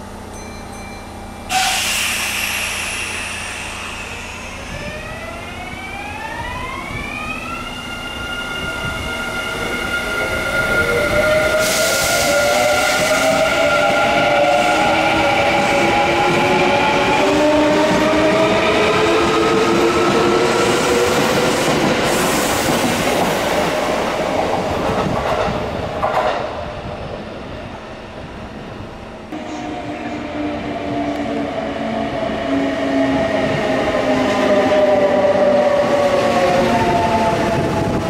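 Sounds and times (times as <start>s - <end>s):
train traction motor whine: 1.4s - 21.4s.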